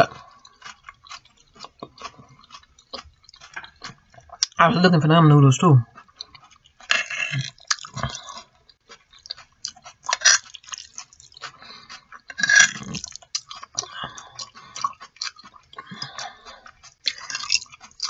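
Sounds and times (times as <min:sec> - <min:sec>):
mouth smacking and clicks: 0:00.0 - 0:04.6, 0:05.9 - 0:18.0
wet chewing of noodles: 0:00.0 - 0:04.6, 0:05.8 - 0:18.0.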